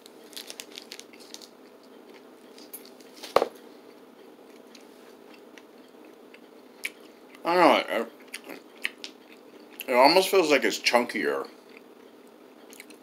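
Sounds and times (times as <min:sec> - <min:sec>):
person chewing: 0:04.5 - 0:07.4, 0:08.2 - 0:09.9, 0:12.7 - 0:13.0.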